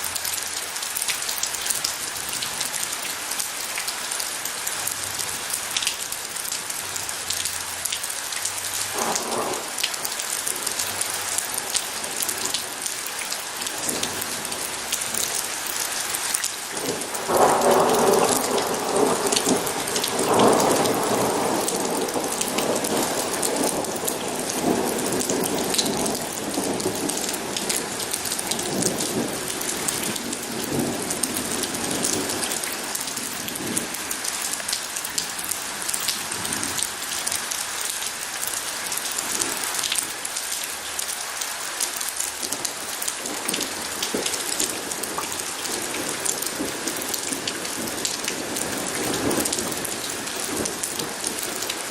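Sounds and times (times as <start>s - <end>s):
steady rainfall: 0.0s - 51.9s
thunder rumbling: 8.9s - 9.8s, 16.9s - 34.0s.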